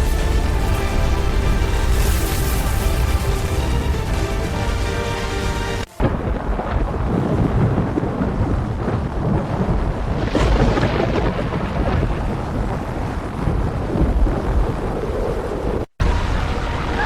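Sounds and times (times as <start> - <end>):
background music: 0.0 - 5.9
rumbling roar with rushing hiss: 0.0 - 17.0.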